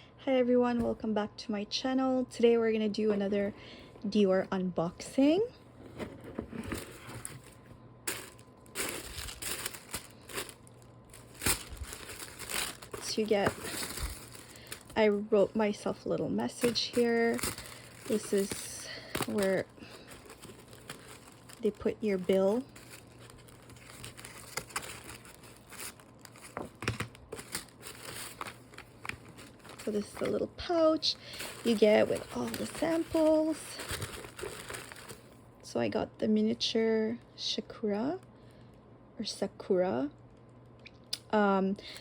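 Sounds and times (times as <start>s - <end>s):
packaging crinkling and rustling: 5.8s - 35.4s.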